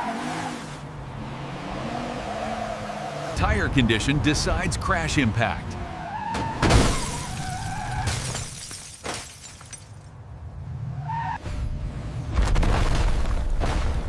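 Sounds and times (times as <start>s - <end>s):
tire screech: 0.0s - 3.4s, 5.6s - 8.4s, 10.8s - 12.0s
car crash smash: 6.3s - 10.0s
glass shattering: 6.6s - 10.1s.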